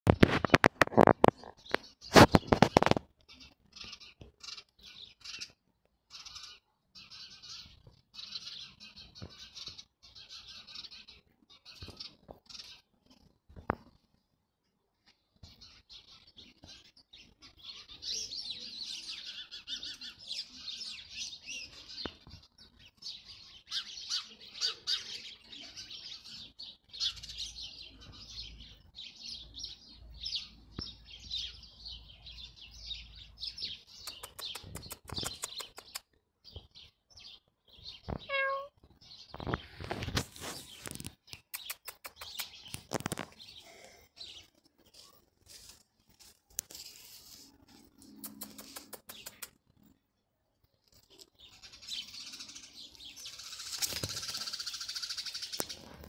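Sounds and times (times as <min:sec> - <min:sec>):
sharp clicks and knocks: 0:00.1 - 0:03.1, 0:34.0 - 0:36.1
songbirds chirping: 0:00.1 - 0:56.0.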